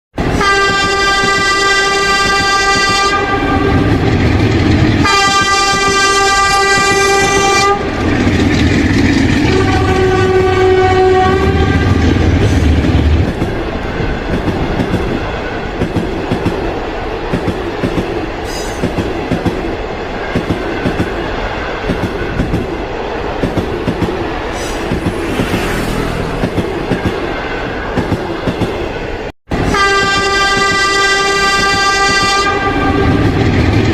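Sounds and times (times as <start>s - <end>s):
train horn blasts: 0.2s - 4.2s, 5.0s - 8.0s, 9.4s - 12.2s, 29.6s - 33.4s
low rumble of train: 0.2s - 33.9s
train wheels clickety-clack: 0.2s - 33.9s.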